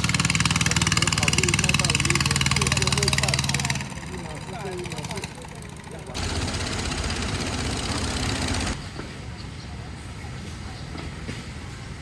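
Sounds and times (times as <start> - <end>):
engine running: 0.0 - 9.0.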